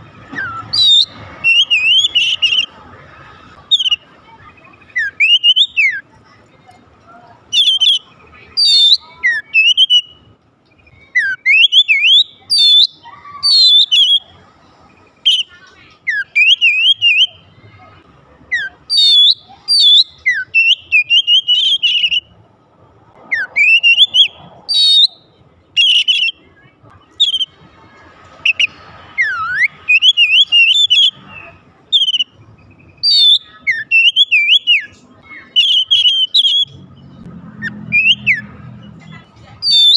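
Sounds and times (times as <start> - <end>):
bird singing whistled phrases: 0.3 - 2.8, 3.7 - 6.0, 7.5 - 14.3, 15.2 - 17.5, 18.5 - 22.3, 23.3 - 27.6, 28.4 - 36.8, 37.6 - 38.6, 39.6 - 39.9.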